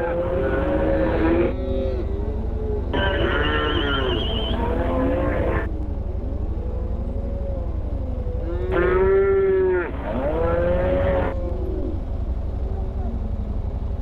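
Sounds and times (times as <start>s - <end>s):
cattle mooing: 0.0s - 5.7s, 7.0s - 12.1s
steady low rumble: 0.0s - 14.0s.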